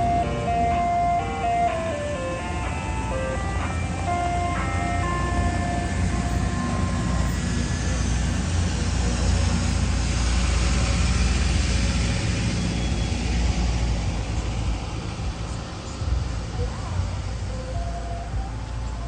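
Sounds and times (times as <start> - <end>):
ice cream truck chime music: 0.0 - 9.3, 14.6 - 19.0
road noise: 0.0 - 19.0
truck engine rumble: 0.0 - 19.0.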